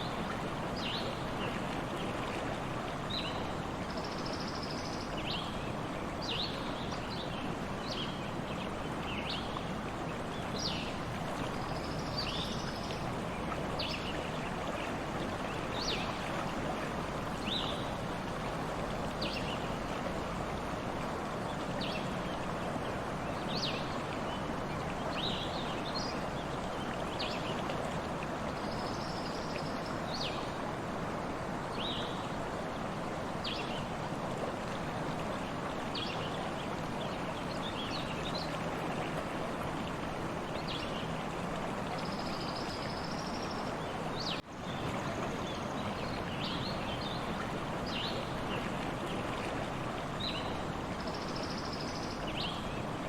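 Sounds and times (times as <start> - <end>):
stream water flowing: 0.0 - 53.0.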